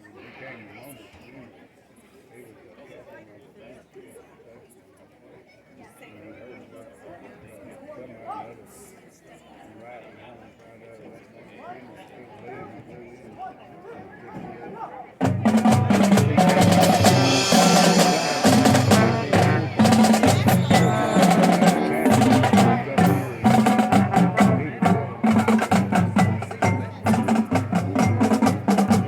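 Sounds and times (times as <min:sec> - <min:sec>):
brass chords: 0:15.2 - 0:29.0
snare and bass drums: 0:15.2 - 0:29.0.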